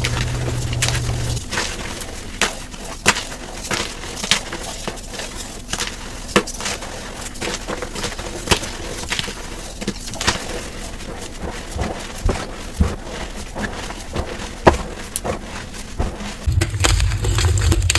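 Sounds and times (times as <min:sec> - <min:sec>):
chalk crunching and crackling: 0:00.0 - 0:17.9
loud cracks: 0:16.5 - 0:17.9.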